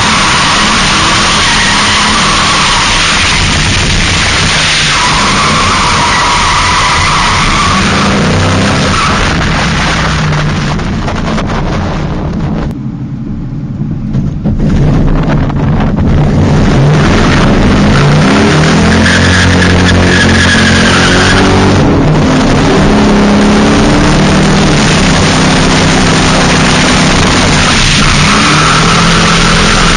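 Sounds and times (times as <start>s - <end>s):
tyres squealing and skidding: 0.0s - 10.1s, 17.2s - 21.8s, 26.1s - 29.9s
car engine revving: 0.0s - 29.9s.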